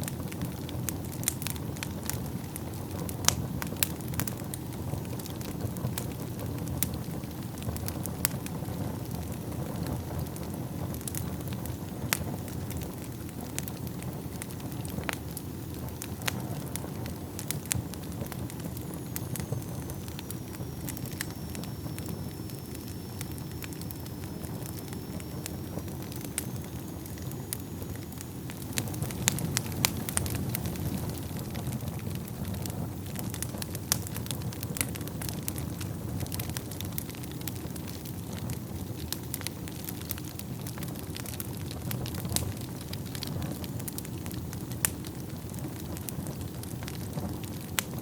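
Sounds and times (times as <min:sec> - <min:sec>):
fire crackling and popping: 0:00.0 - 0:48.0
fire flames rumbling: 0:00.0 - 0:48.0
faint high whistle: 0:18.5 - 0:30.4.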